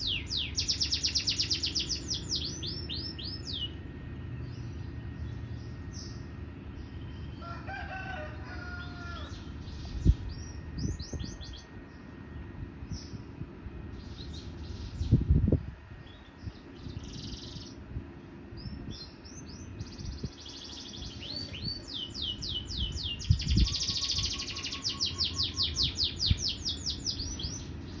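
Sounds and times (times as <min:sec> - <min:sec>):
canary singing: 0:00.0 - 0:03.8, 0:19.0 - 0:28.0.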